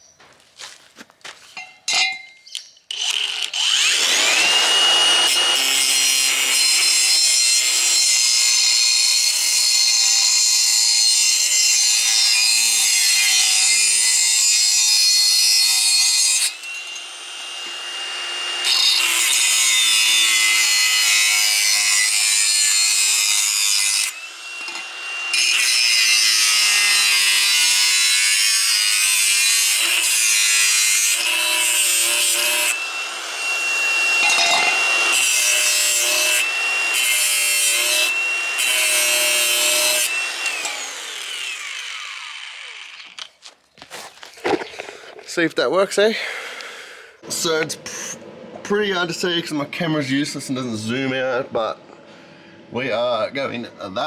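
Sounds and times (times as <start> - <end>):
angle grinder cutting metal pipe: 2.9 - 43.3.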